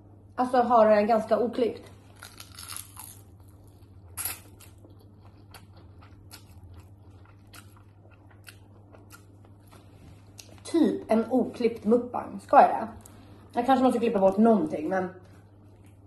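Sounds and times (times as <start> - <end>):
low steady hum: 0.0 - 16.0
quiet chewing: 2.2 - 10.6, 15.2 - 16.0.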